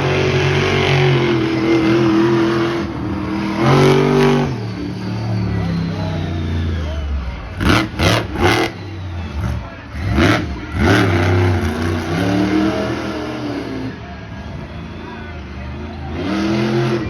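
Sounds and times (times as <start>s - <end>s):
monster truck engine revving: 0.0s - 17.0s
sharp loud engine bursts: 0.6s - 14.0s.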